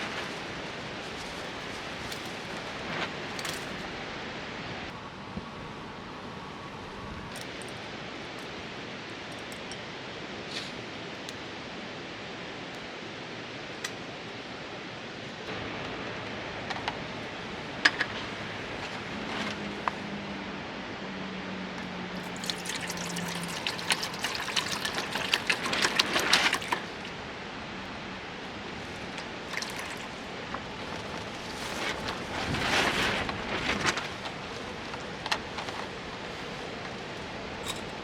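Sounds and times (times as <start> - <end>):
water pouring and splashing: 0.0 - 3.8, 22.2 - 27.2, 28.4 - 38.0.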